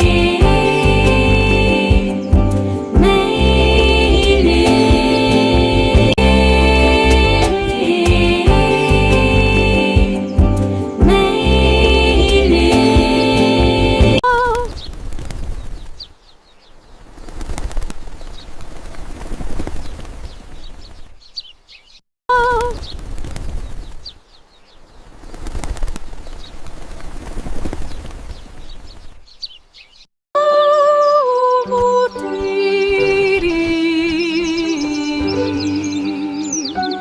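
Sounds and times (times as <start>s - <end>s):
music with held tones: 0.0s - 14.2s
small birds chirping: 14.2s - 18.6s, 19.8s - 30.1s, 31.0s - 37.0s.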